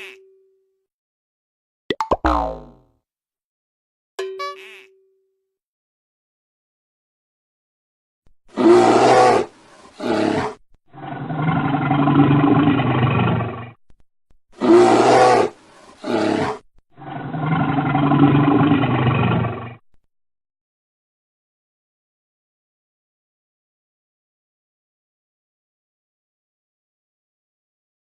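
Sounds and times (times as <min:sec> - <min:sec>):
tiger growl: 0:08.5 - 0:13.8, 0:14.6 - 0:19.8
tiger roars: 0:08.5 - 0:13.8, 0:14.6 - 0:19.8.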